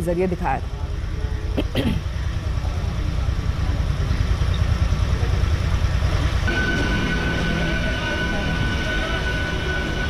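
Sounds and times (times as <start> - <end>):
electric train rumble: 0.0 - 10.0
steady high tone: 6.5 - 10.0.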